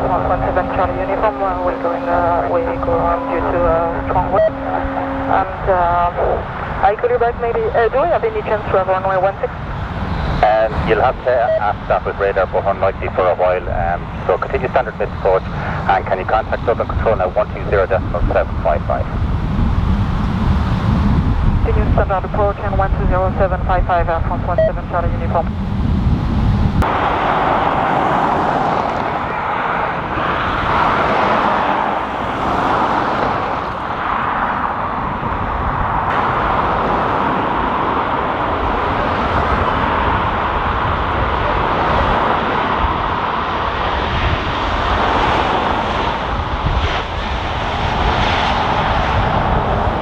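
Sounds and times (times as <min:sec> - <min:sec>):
jet engines rushing: 0:00.0 - 0:50.0.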